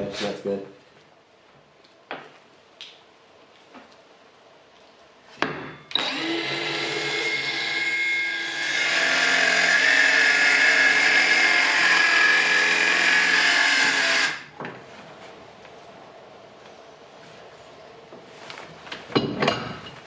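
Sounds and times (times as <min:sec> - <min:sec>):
electric saw cutting wood: 0:05.9 - 0:14.5.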